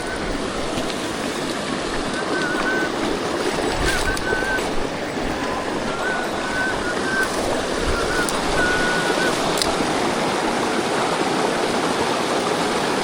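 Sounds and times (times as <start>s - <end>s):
faint high whistle-like tones: 0.0s - 10.2s
stream rushing over rocks: 0.0s - 13.0s.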